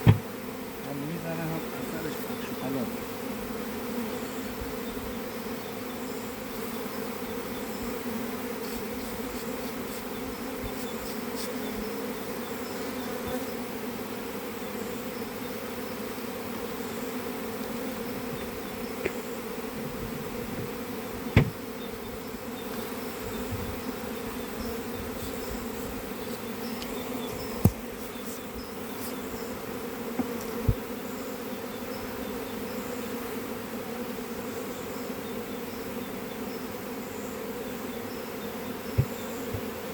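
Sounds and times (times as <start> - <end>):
sharp knocks: 0.0 - 0.3, 21.3 - 21.7, 39.0 - 39.7
honeybees buzzing: 0.0 - 39.9.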